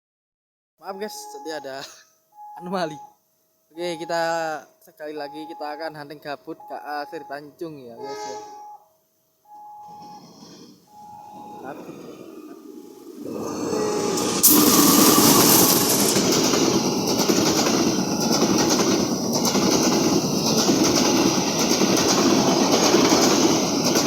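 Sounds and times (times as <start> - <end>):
train rumble and wheel clatter: 9.9 - 24.0.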